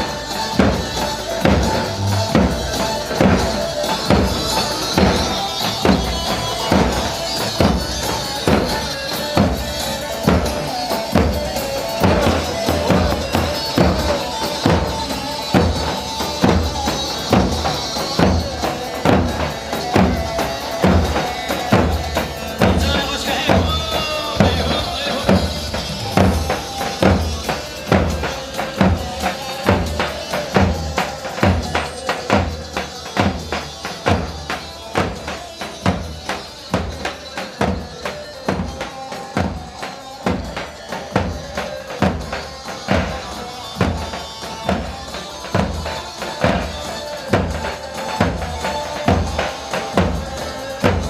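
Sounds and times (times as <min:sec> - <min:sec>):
heavy drum beat: 0:00.0 - 0:51.0.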